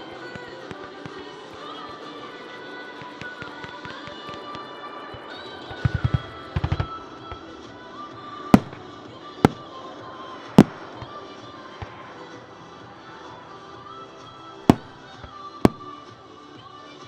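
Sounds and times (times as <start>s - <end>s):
fireworks crackling: 0.0s - 13.5s, 14.5s - 16.1s
music: 0.0s - 17.0s
fireworks bangs: 3.0s - 7.8s, 8.4s - 12.4s, 14.7s - 16.0s.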